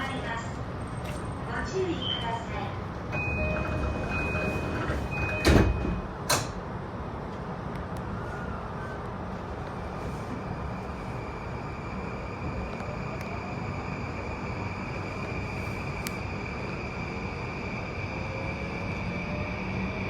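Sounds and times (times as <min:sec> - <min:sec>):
train low rumble: 0:00.0 - 0:20.0
train door chime: 0:03.1 - 0:06.5
sliding doors shutting with thuds: 0:03.2 - 0:06.6.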